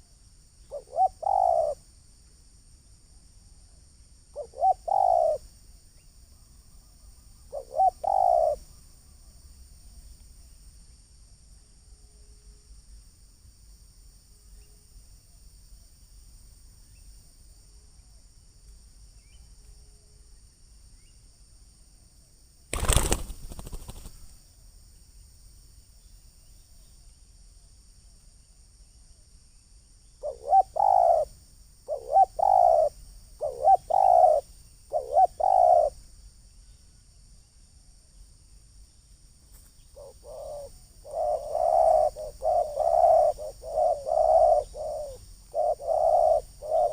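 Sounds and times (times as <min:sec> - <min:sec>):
high insect-like hiss: 0:00.0 - 0:46.9
doves cooing: 0:00.7 - 0:01.8, 0:04.4 - 0:05.4, 0:07.5 - 0:08.6, 0:30.2 - 0:31.3, 0:31.9 - 0:36.0, 0:40.0 - 0:46.9.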